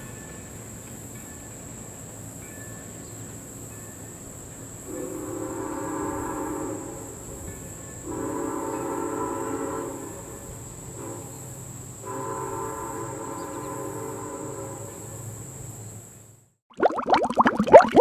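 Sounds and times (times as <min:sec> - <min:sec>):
steam locomotive whistle blasts: 0:04.9 - 0:15.3.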